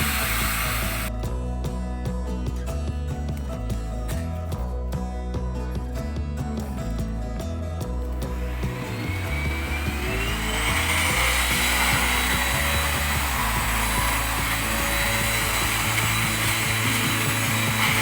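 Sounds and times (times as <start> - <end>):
vacuum cleaner motor whine: 0.0 - 1.1, 8.3 - 18.0.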